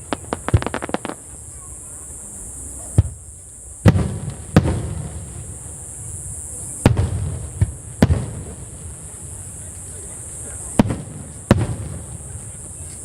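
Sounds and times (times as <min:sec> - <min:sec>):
firework shells bursting: 0:00.0 - 0:01.6.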